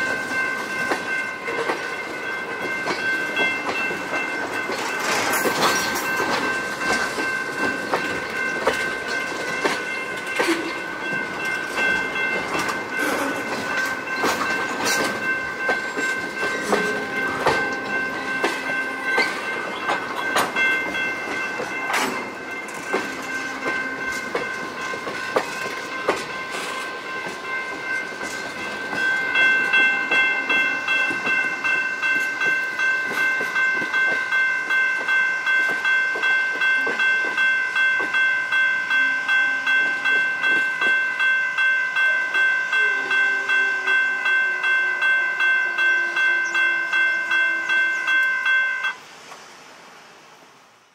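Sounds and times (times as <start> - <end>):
train wheels clicking over rail joints: 0.0 - 38.6.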